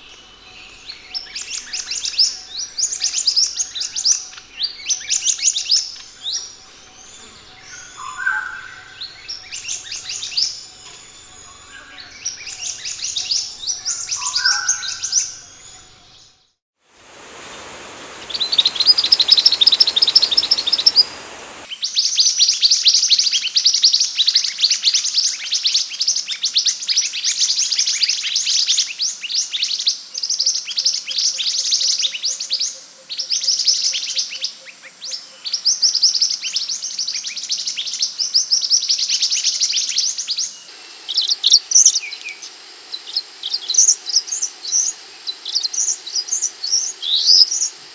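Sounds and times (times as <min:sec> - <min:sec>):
hiss: 0:16.8 - 0:21.7, 0:40.7 - 0:47.9
birds chirping in rapid runs: 0:17.0 - 0:21.7.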